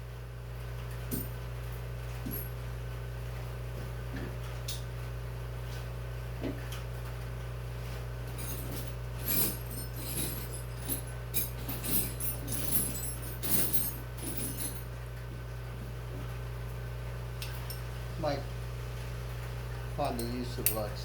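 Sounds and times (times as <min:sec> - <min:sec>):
steady low hum: 0:00.0 - 0:21.0
metal tools clinking: 0:08.3 - 0:14.8, 0:20.0 - 0:20.9.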